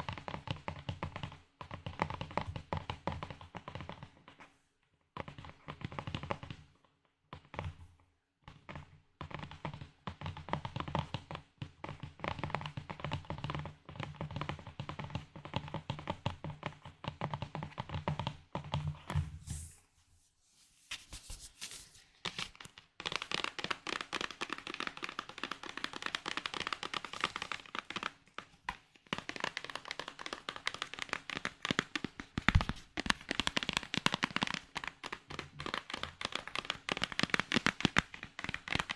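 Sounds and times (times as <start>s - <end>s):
tapping and crackling on small objects: 22.6s - 38.9s.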